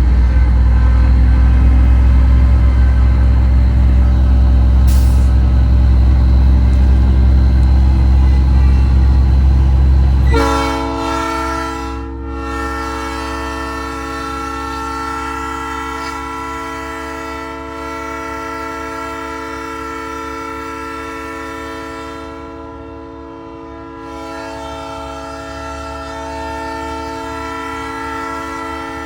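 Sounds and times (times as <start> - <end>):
truck engine rumble: 0.0 - 18.6
train horn chord: 0.0 - 29.0.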